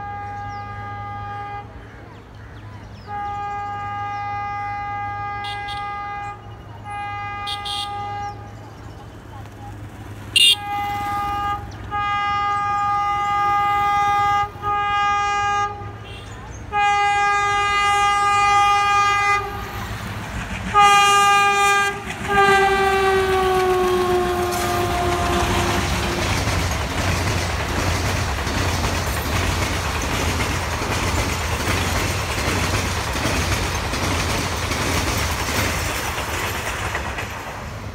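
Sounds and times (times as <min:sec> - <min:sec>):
locomotive horn blasts: 0:00.0 - 0:01.8, 0:03.1 - 0:08.6, 0:10.3 - 0:20.0, 0:20.7 - 0:26.6
train coaches rumbling: 0:00.0 - 0:37.9
wheels clacking on rail joints: 0:18.0 - 0:37.9.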